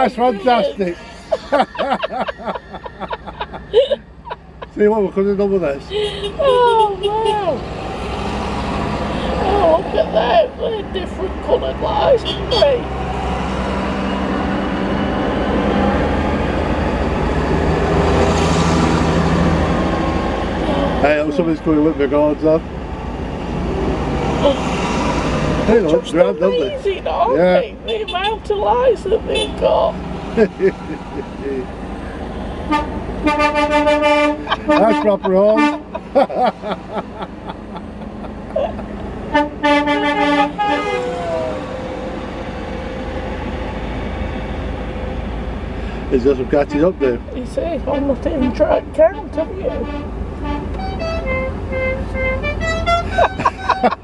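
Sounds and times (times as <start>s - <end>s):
diesel tractor engines running: 0.0s - 54.0s
vehicle horn tooting: 12.0s - 12.8s, 29.2s - 29.6s, 32.6s - 36.0s, 39.3s - 41.2s, 49.6s - 53.9s.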